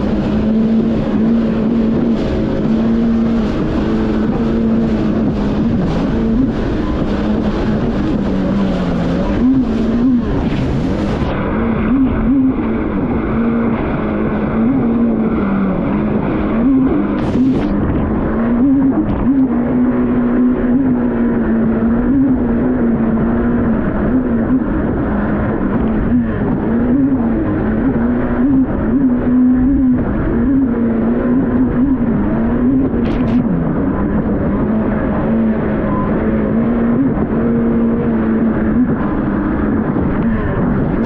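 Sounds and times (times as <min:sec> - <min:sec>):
jet ski engine running: 0:00.0 - 0:41.0
steady rush of noise: 0:00.0 - 0:41.0.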